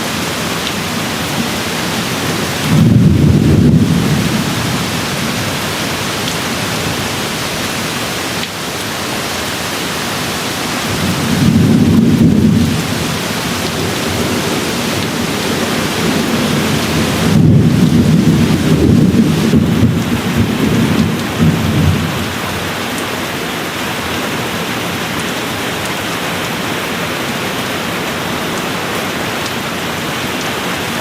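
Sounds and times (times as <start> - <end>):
steady rain falling: 0.0 - 31.0
low rolling thunder: 2.5 - 7.2, 10.8 - 22.4.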